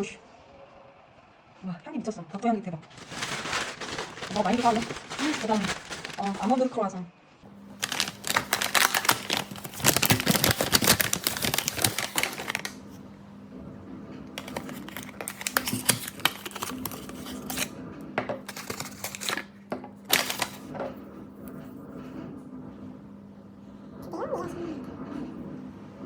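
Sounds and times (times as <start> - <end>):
paper bags rustling: 2.8 - 6.8, 7.8 - 13.0, 14.4 - 20.7.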